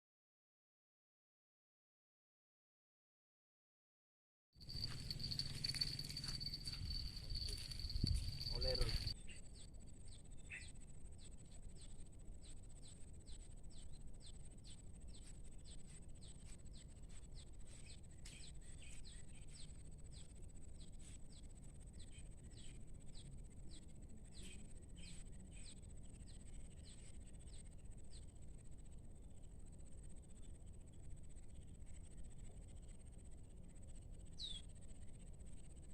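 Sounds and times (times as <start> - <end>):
steady high whine: 4.6 - 9.2
low outdoor rumble: 4.6 - 11.5
bird chirping: 4.7 - 28.4, 33.9 - 35.2.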